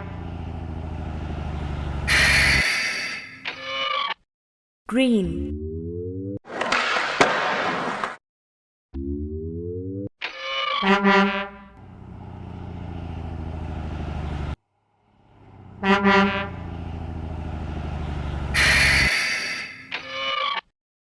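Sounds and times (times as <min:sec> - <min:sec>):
truck engine running: 0:00.0 - 0:02.6, 0:11.7 - 0:19.1
truck horn honks: 0:02.0 - 0:03.2, 0:10.8 - 0:11.8, 0:15.6 - 0:16.9, 0:18.3 - 0:19.7.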